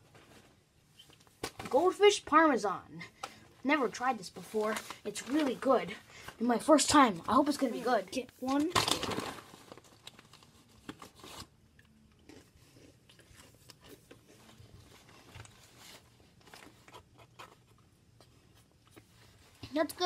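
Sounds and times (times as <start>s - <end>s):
crackers being chewed: 9.8s - 19.4s.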